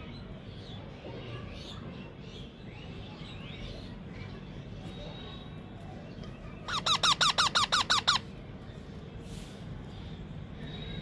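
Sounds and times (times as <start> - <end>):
parakeet squeaky calls: 6.7 - 8.3.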